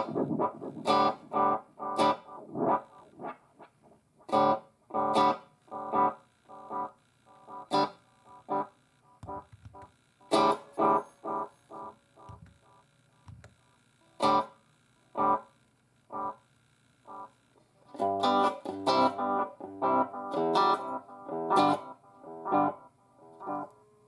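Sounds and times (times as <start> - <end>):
distorted electric guitar chords: 0.0 - 12.8, 18.0 - 23.9.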